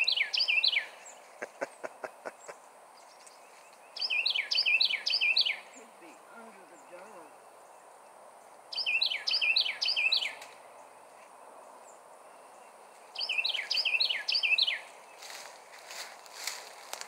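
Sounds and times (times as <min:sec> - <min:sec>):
songbird singing: 0:00.0 - 0:17.0
leaves and twigs rustling: 0:02.6 - 0:04.2, 0:12.8 - 0:17.0.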